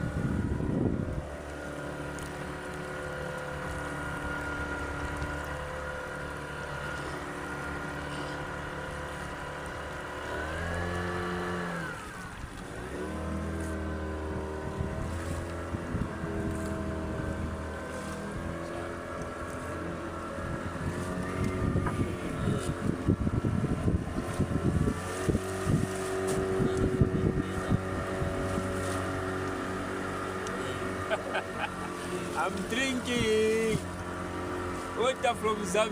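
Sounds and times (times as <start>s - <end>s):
boat engine running: 0.0s - 35.9s.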